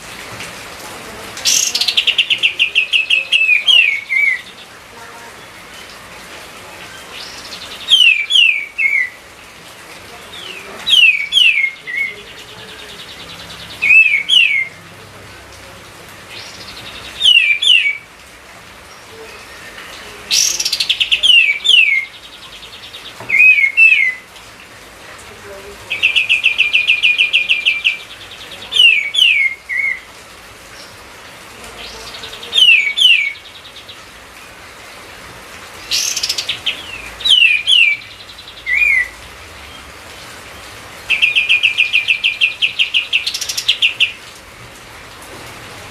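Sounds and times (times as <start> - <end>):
bird whistling song: 7.2 - 9.2, 10.9 - 12.2, 13.7 - 14.8, 16.4 - 18.0, 23.3 - 24.2, 32.6 - 33.4, 35.9 - 39.1.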